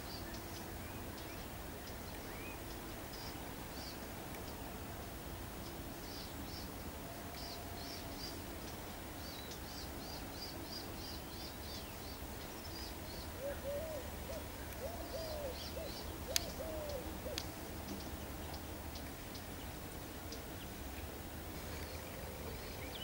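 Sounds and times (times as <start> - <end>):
birds chirping: 5.6 - 23.0
bird hooting: 13.4 - 17.5.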